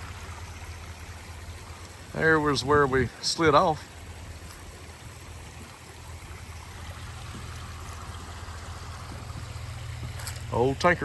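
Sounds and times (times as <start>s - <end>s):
constant low hum: 0.0s - 11.0s
creek water running: 0.0s - 11.0s.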